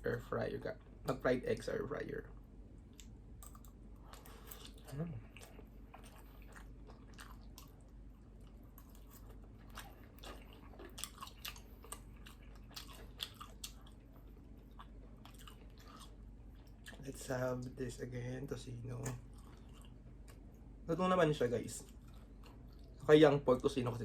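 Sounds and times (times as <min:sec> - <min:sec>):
person chewing with wet smacks: 0:02.8 - 0:17.2, 0:19.0 - 0:20.7, 0:21.7 - 0:23.1.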